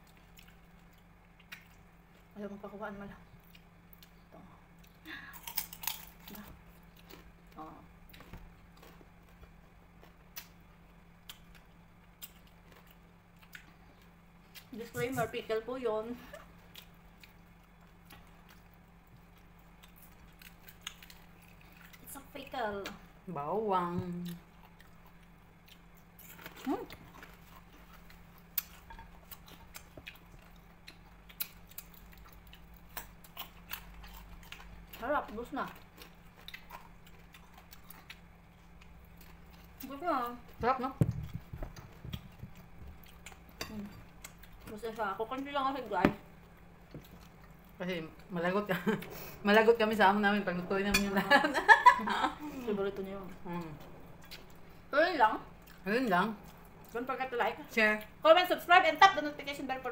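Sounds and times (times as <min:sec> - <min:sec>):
people chewing and biting food: 0:00.0 - 0:02.4, 0:03.3 - 0:15.2, 0:16.3 - 0:22.2, 0:24.1 - 0:45.4, 0:46.4 - 0:48.3
faint steady hum: 0:00.0 - 0:59.9.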